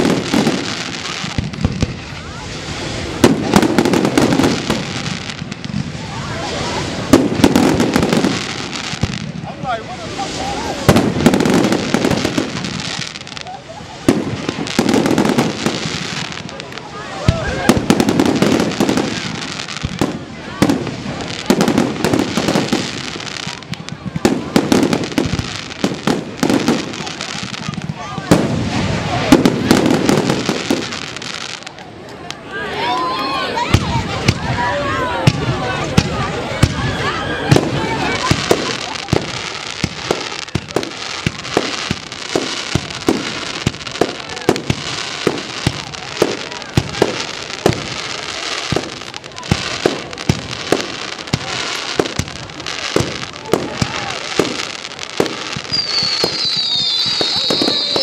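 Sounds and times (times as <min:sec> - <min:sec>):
fireworks bangs: 0:00.0 - 0:58.0
fireworks crackling hiss: 0:00.0 - 0:58.0
fireworks shells bursting: 0:37.5 - 0:58.0.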